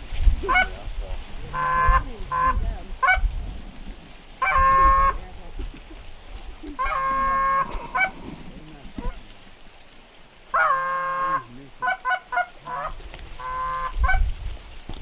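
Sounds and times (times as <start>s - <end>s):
wind rumble on microphone: 0.0s - 9.5s, 12.6s - 15.0s
geese honking: 0.4s - 9.4s, 10.5s - 14.2s.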